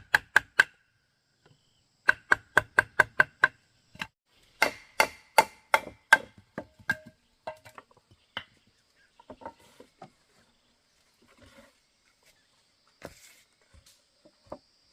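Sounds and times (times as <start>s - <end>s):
hand tool striking wood: 0.0s - 0.8s, 2.0s - 7.8s.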